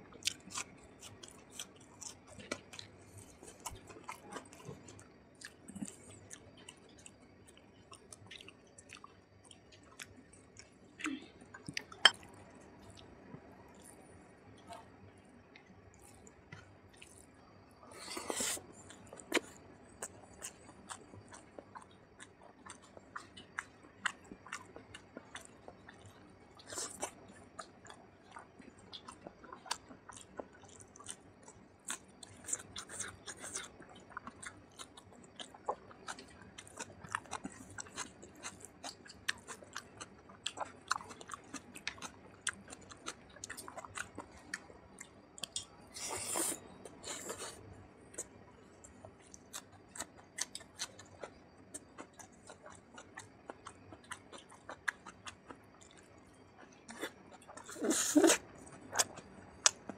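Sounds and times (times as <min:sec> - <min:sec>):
wet chewing and mouth smacks: 0:18.4 - 0:59.9.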